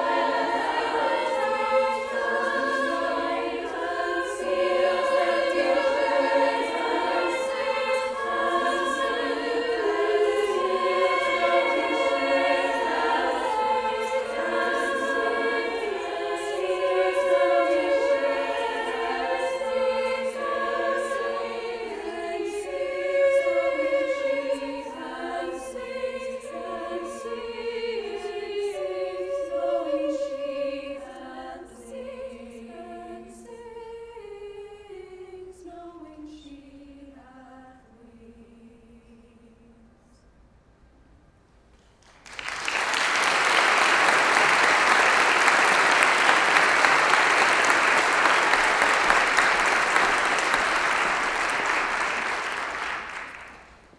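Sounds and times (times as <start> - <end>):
choir singing in harmony: 0.0 - 39.9, 42.5 - 53.8.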